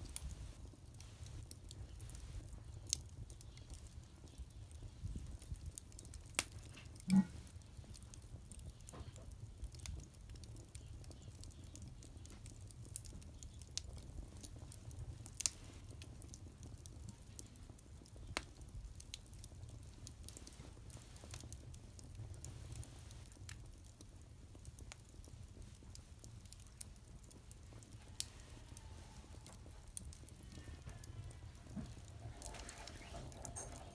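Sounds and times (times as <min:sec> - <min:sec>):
wood fire crackling: 0:00.0 - 0:33.9.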